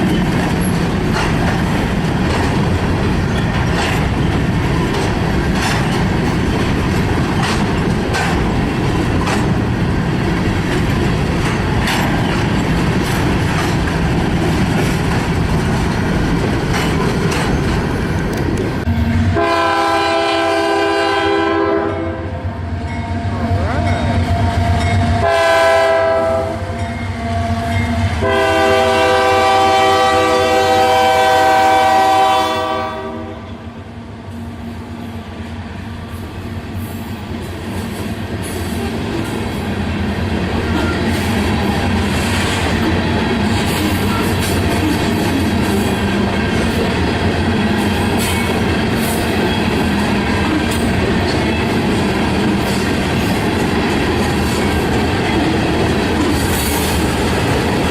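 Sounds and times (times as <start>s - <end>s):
train wheels clicking over rail joints: 0.0s - 19.1s, 36.1s - 57.9s
locomotive horn blasts: 18.9s - 22.4s, 25.1s - 33.6s.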